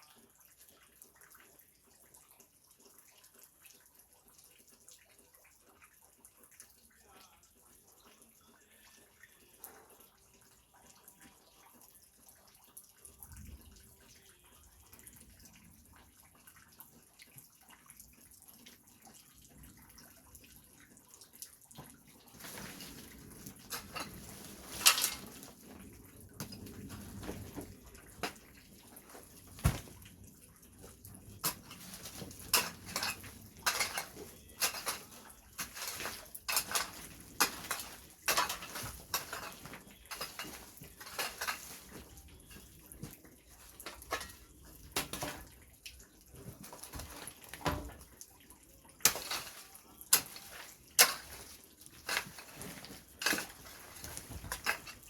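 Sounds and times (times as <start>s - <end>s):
hard objects clacking and knocking: 22.5s - 25.6s, 31.3s - 42.0s, 49.1s - 55.0s.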